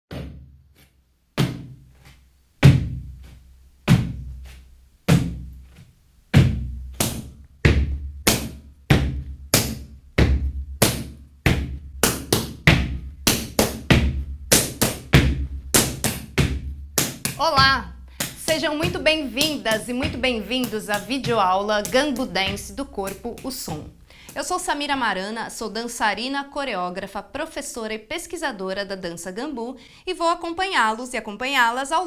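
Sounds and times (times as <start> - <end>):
rubber boots slapping and stomping: 0.1 - 24.6.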